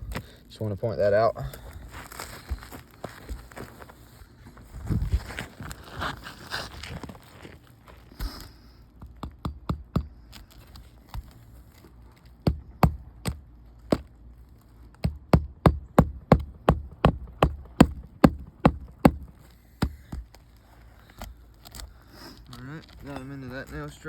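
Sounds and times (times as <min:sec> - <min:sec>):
hammer striking roofing nails: 0:09.0 - 0:10.2, 0:12.4 - 0:14.1, 0:15.0 - 0:20.3.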